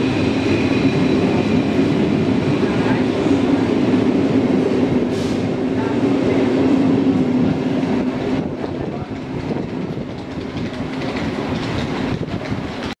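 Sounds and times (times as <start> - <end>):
train rolling over track: 0.0 - 13.0
wheels clacking over rail joints: 7.8 - 13.0.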